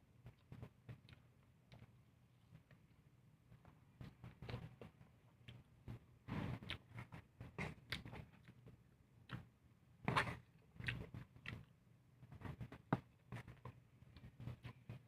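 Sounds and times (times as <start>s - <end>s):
person chewing: 6.6s - 9.5s, 10.1s - 11.8s.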